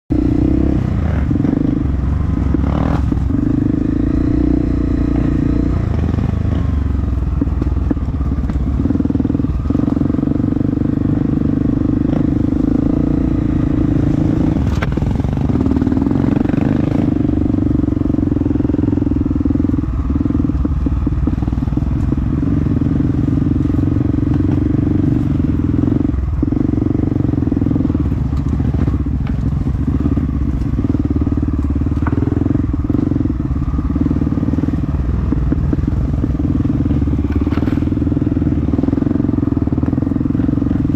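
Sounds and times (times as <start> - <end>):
dirt bike engine revving: 0.1 - 6.8, 8.4 - 29.1.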